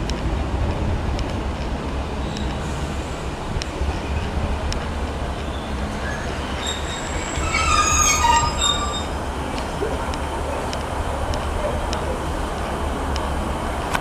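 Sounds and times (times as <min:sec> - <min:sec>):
train rumbling: 0:00.0 - 0:14.0
high metallic squeal: 0:05.5 - 0:09.3.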